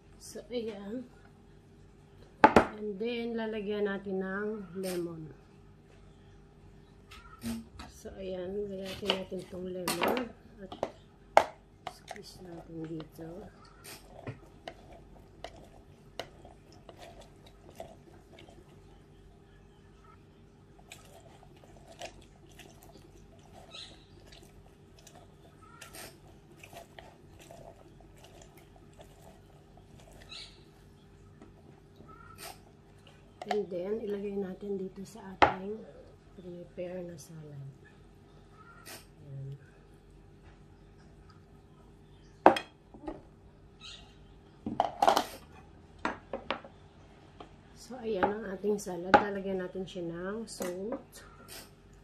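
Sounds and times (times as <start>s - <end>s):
lemon squishing on citrus reamer: 20.4s - 31.0s.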